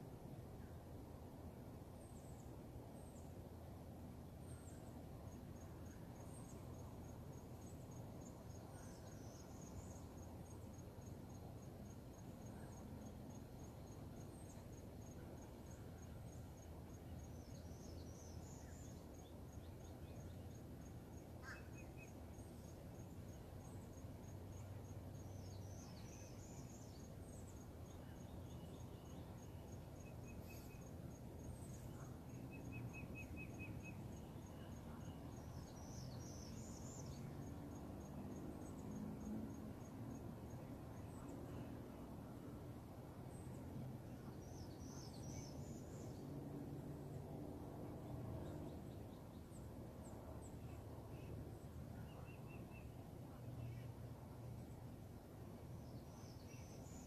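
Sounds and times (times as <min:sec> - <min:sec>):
insect chirping: 0:04.4 - 0:42.4
bird calls: 0:21.4 - 0:22.2.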